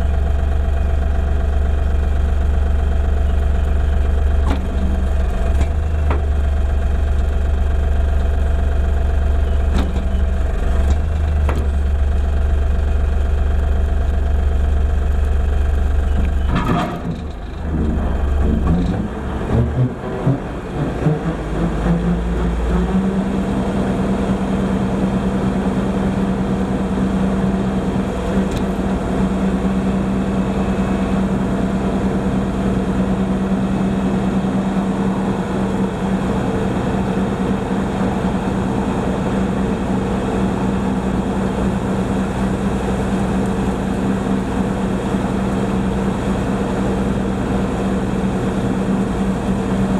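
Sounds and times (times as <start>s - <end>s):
tractor diesel engine running: 0.0s - 49.9s
knocks and clatter: 4.2s - 6.5s, 16.1s - 20.4s.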